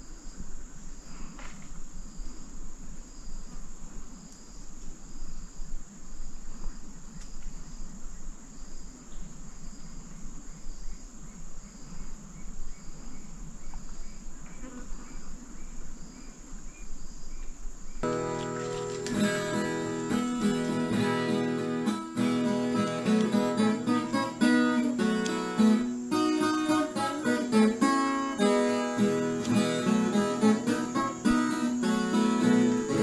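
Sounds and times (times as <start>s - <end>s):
cricket chirping: 0.0s - 33.0s
low uneven background noise: 0.0s - 33.0s
lower insect chirping: 0.0s - 33.0s
high-pitched insect buzz: 18.0s - 33.0s.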